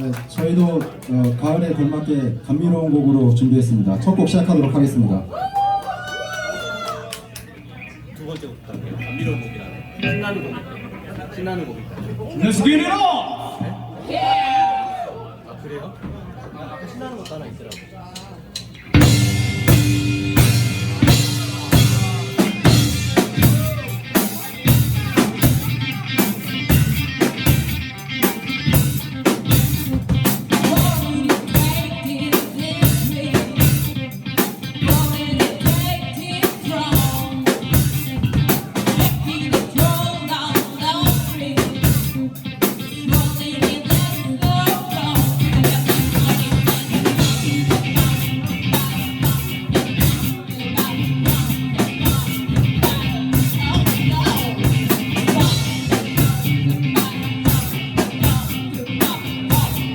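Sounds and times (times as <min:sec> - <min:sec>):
live band playing upbeat song: 0:18.4 - 0:59.9
drum kit fast beat: 0:18.9 - 0:59.9.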